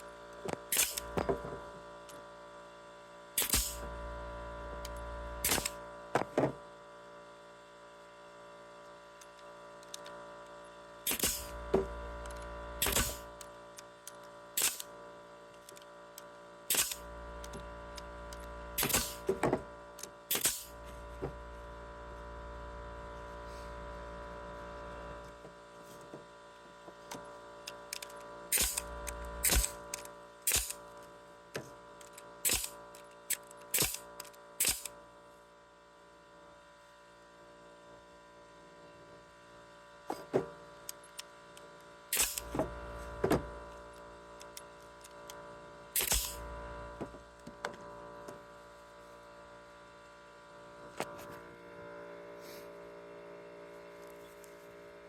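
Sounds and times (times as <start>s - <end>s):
electrical hum: 0.0s - 55.0s
sharp clicks and knocks: 46.0s - 46.4s.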